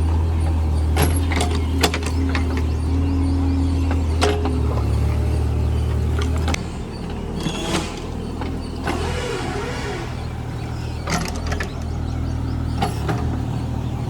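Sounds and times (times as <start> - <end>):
excavator engine running: 0.0 - 14.0
sharp knocks and clanks: 6.1 - 13.7.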